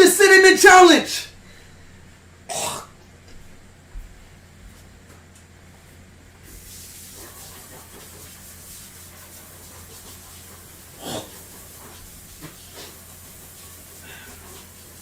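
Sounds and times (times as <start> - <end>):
steady hiss: 6.4 - 15.0.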